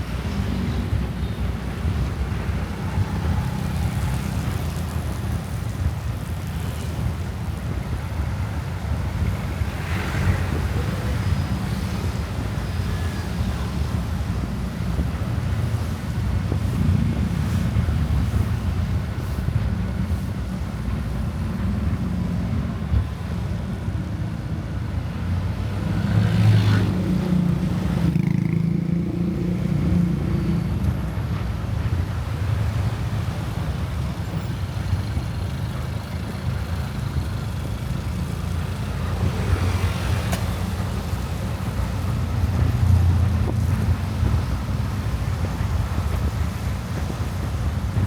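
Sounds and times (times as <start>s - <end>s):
motorcycle engine and road rumble: 0.0s - 48.0s.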